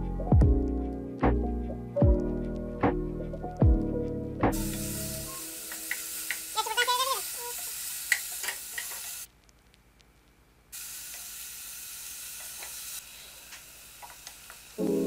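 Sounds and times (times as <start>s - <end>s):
utensil clicking: 4.6s - 6.5s, 7.3s - 10.1s, 11.0s - 14.8s
food sizzling in a hot pan: 4.6s - 9.3s, 10.8s - 15.0s.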